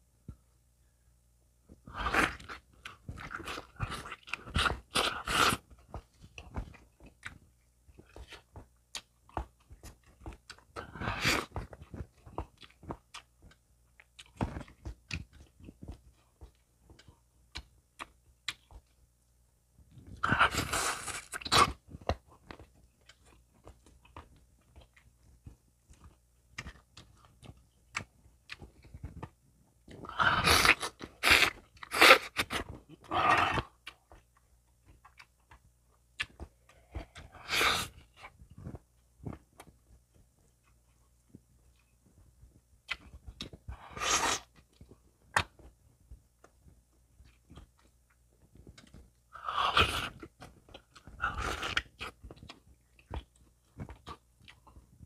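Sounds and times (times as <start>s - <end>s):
person chewing and crunching: 1.9s - 19.0s, 20.0s - 41.9s, 42.8s - 45.8s, 47.2s - 55.0s.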